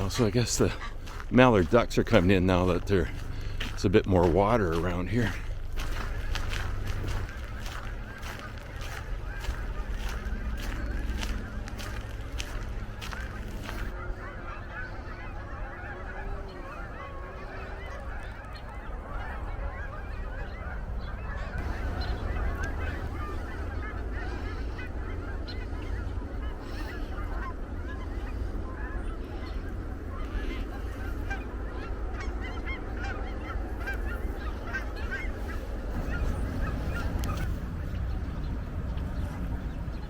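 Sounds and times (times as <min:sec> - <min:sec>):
flock of geese honking: 0:00.0 - 0:40.0.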